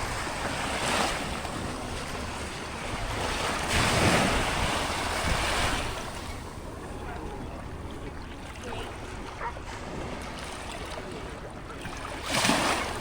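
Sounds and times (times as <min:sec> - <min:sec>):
wind rumbling on microphone: 0:00.0 - 0:10.4
ocean surf washing ashore: 0:00.0 - 0:13.0.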